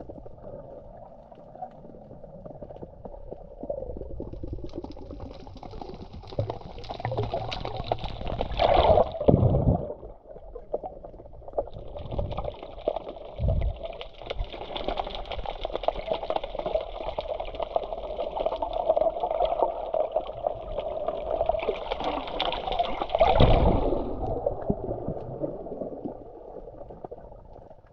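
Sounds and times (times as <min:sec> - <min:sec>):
sea water sloshing and gurgling: 0:00.0 - 0:27.9
water surge splash: 0:21.9 - 0:26.3.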